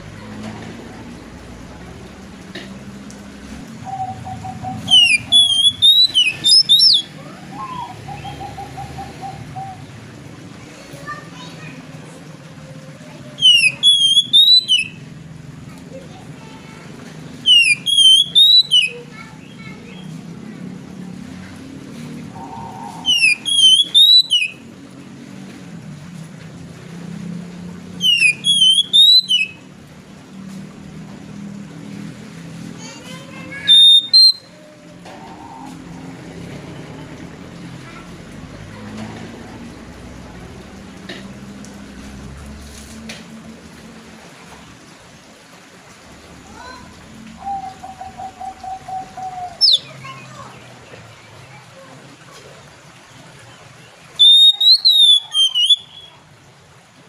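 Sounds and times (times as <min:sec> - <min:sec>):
bird singing whistled notes: 0:03.9 - 0:08.6, 0:13.4 - 0:15.0, 0:17.5 - 0:19.0, 0:22.4 - 0:24.6, 0:28.0 - 0:29.6, 0:33.7 - 0:34.6, 0:48.9 - 0:49.9, 0:54.2 - 0:56.2
repeated short bird notes: 0:04.2 - 0:07.1, 0:13.4 - 0:15.0, 0:17.5 - 0:19.0, 0:22.8 - 0:24.6, 0:28.0 - 0:29.6, 0:33.5 - 0:34.6, 0:49.4 - 0:50.5, 0:54.2 - 0:56.2.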